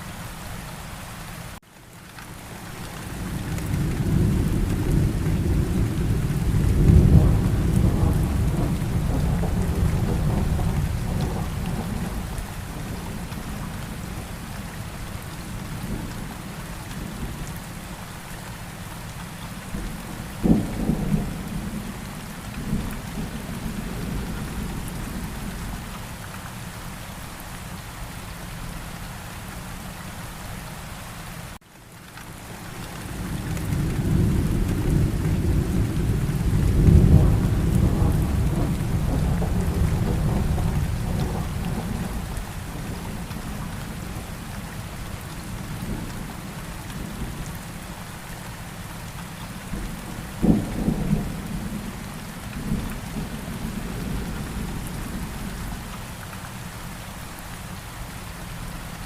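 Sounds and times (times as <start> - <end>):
steady rain: 0.0 - 59.0
rolling thunder: 3.7 - 14.2, 33.2 - 46.3, 49.7 - 55.6
sharp thunderclap: 34.0 - 42.3.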